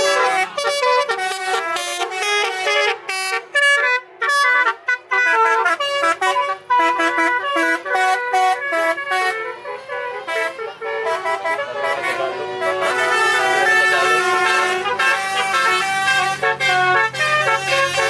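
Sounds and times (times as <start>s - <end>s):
truck air horn playing melody: 0.0s - 18.0s.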